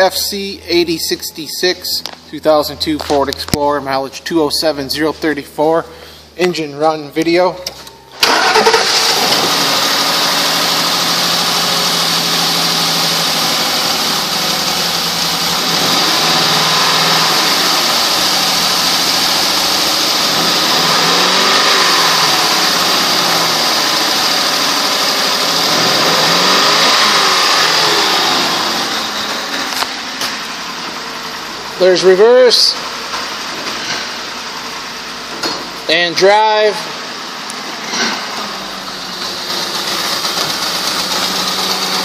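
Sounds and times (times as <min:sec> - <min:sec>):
car engine running: 0:00.0 - 0:07.3, 0:08.0 - 0:42.0.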